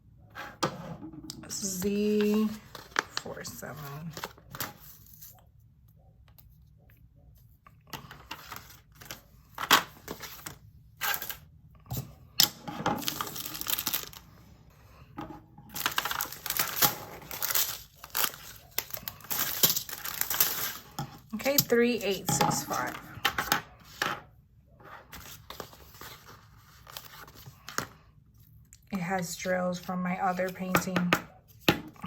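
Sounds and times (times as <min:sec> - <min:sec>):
plastic bag crinkling: 0:13.0 - 0:14.3, 0:15.7 - 0:21.0.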